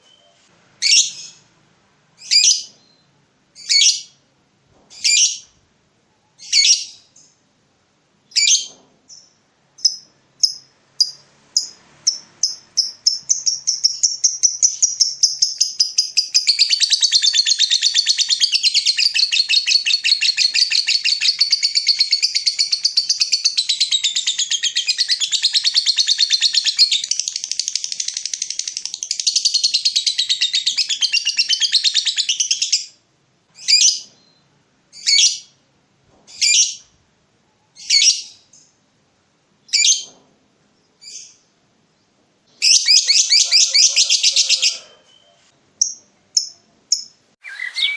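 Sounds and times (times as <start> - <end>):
songbird singing: 2.1 - 4.2, 8.3 - 33.0, 39.6 - 47.9
sharp bird calls: 42.5 - 47.9.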